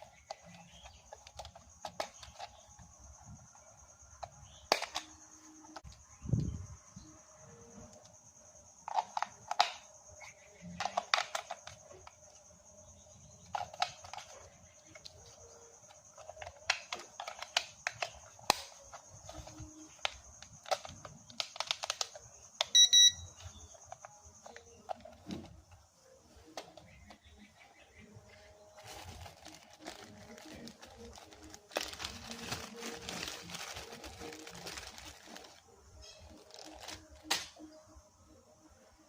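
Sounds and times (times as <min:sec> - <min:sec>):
electronic beeps: 0:22.7 - 0:23.6.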